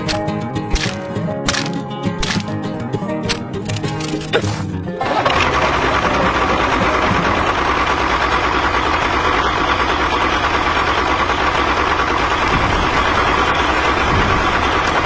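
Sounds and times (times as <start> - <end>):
music: 0.0 - 7.5
small tractor engine running: 0.0 - 15.0.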